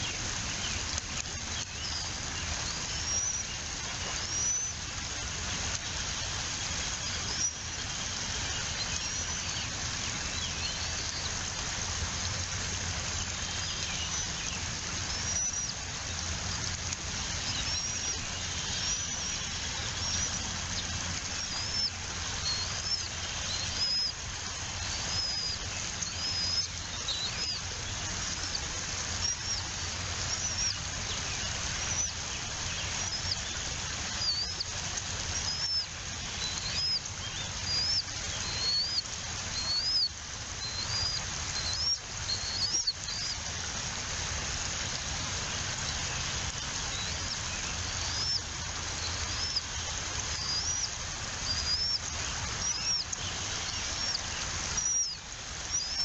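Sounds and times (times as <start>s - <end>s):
background hiss: 0.0s - 56.0s
eagle chicks peeping: 50.3s - 54.2s, 54.8s - 56.0s.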